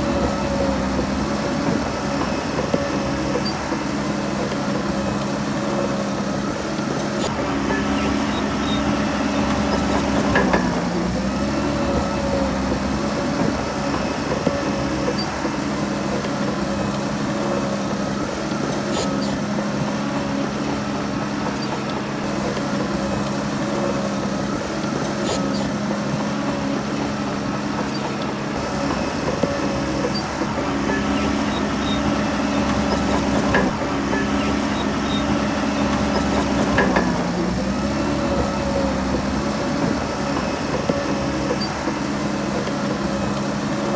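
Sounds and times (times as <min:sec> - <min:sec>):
heavy diesel engine under load: 0:00.0 - 0:43.9.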